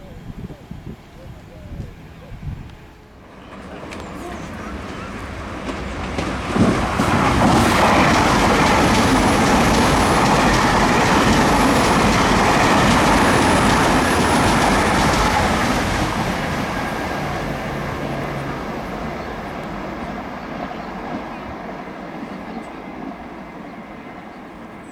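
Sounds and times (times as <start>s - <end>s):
train passing: 0.0s - 24.9s
wheels clickety-clack: 3.3s - 23.4s.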